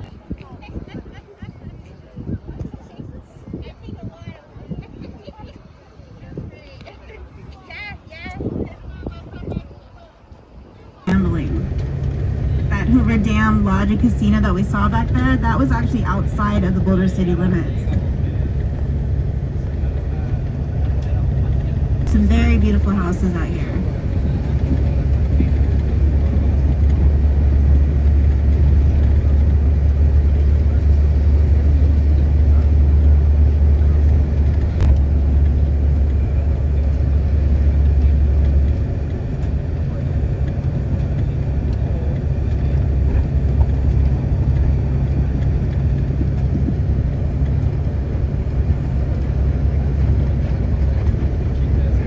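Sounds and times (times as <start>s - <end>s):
car driving interior rumble: 11.1s - 52.0s.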